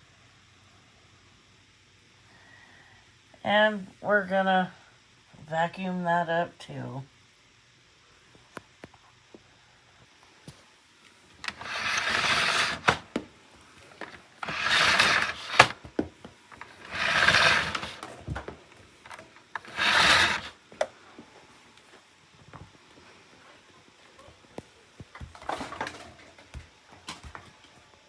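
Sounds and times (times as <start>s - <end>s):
rough brushing strokes: 11.5s - 13.0s, 14.0s - 15.8s, 16.6s - 18.0s, 19.1s - 20.6s.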